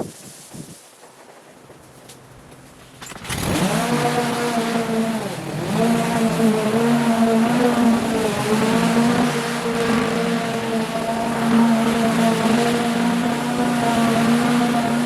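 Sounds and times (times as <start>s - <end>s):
small petrol engine running: 3.0s - 15.0s.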